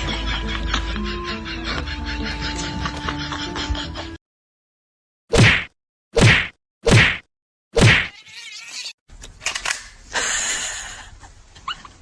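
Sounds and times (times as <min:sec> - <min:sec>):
short whacking hits: 0:05.3 - 0:08.1.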